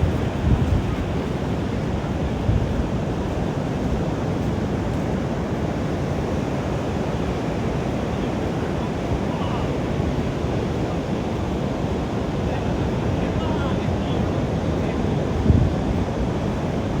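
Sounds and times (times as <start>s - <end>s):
ocean surf washing up beach: 0.0s - 17.0s
wind rumbling on microphone: 0.0s - 17.0s.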